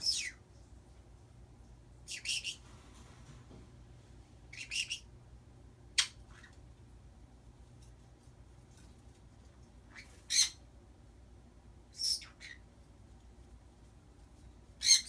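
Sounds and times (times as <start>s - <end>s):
pet birds chirping and squawking: 0.0s - 0.5s, 2.0s - 2.7s, 4.5s - 5.2s, 5.9s - 6.8s, 9.8s - 10.7s, 11.8s - 12.8s, 14.6s - 15.0s
low steady hum: 0.0s - 15.0s.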